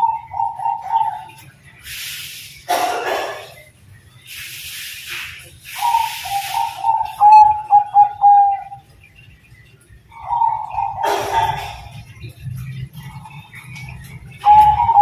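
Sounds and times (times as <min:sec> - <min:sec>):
dove cooing: 0:00.0 - 0:01.4, 0:05.8 - 0:08.8, 0:10.1 - 0:15.0
bursts of hiss: 0:01.8 - 0:03.5, 0:04.2 - 0:07.0.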